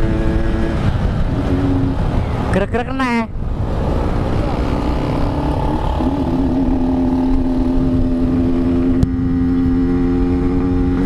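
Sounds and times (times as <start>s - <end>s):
two-stroke motorcycle engine running: 3.9s - 11.0s.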